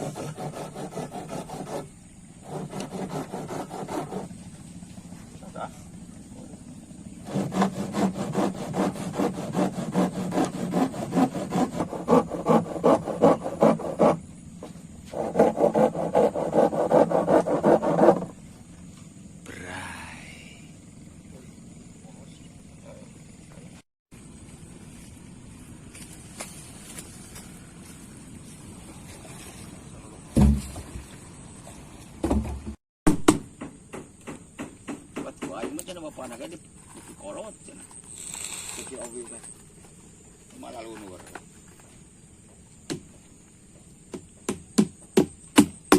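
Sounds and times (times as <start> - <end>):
handsaw sawing: 0.0 - 4.3, 7.2 - 14.2, 15.0 - 18.4
sharp knocks: 30.3 - 31.0, 32.2 - 36.0, 44.1 - 45.9
heavy thumps: 30.4 - 31.1.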